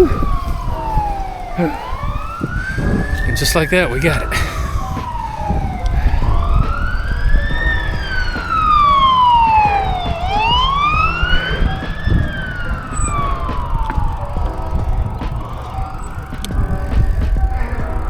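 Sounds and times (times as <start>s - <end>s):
emergency vehicle siren wailing: 0.0s - 18.0s
low rumbling noise: 0.0s - 18.0s.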